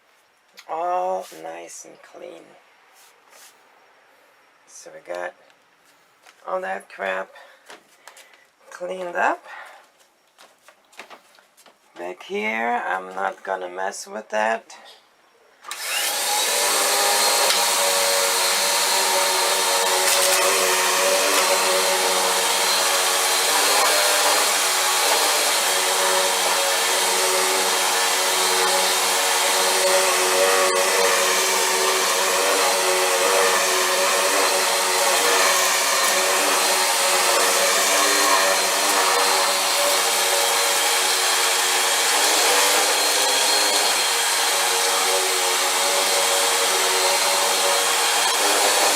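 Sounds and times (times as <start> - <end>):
vacuum cleaner motor whining: 15.7 - 48.9.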